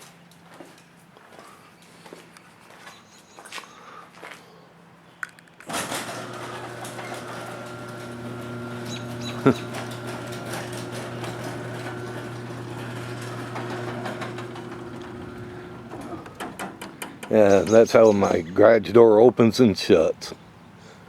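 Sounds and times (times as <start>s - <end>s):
garage door clunk: 5.7s - 18.2s
garage door opener humming: 5.7s - 18.4s.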